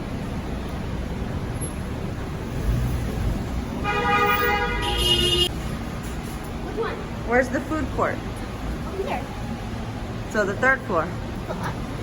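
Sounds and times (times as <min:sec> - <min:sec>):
street traffic rumbling: 0:00.0 - 0:12.0
car horn honking: 0:03.8 - 0:05.5.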